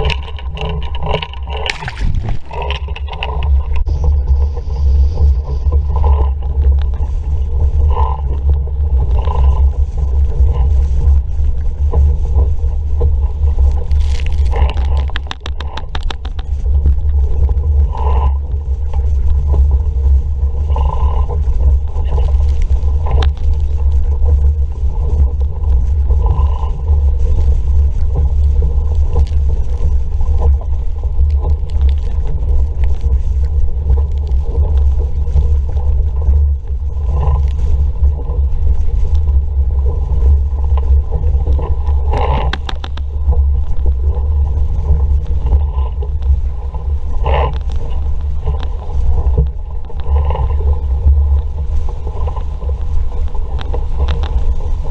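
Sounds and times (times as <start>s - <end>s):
water rushing past boat: 0.0s - 54.9s
wind buffeting microphone: 0.0s - 54.9s
splashes or knocks: 1.1s - 3.4s.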